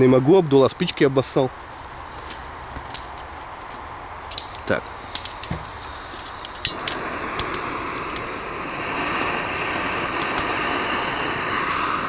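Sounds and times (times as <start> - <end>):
gas stove flame hissing: 4.5 - 12.0.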